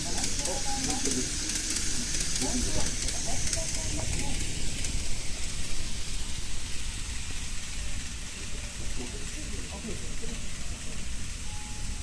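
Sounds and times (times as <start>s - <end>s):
hiss: 0.0s - 12.0s
model train rattling rumble: 0.0s - 12.0s.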